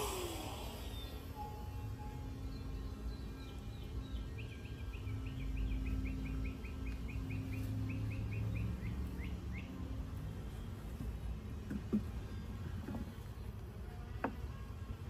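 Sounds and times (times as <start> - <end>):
bird chirping: 0.0 - 10.7
low steady hum: 0.0 - 15.0.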